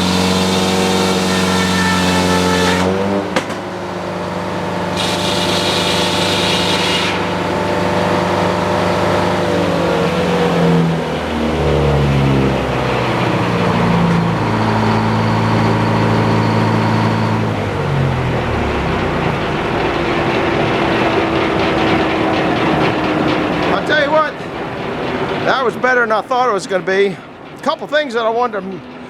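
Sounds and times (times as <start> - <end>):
sawmill engine running: 0.0 - 29.0.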